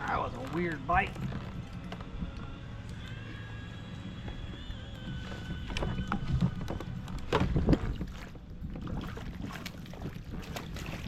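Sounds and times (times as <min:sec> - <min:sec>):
water around kayak: 0:00.0 - 0:11.0
wind: 0:00.0 - 0:11.0
sharp knocks or splashes: 0:05.7 - 0:11.0.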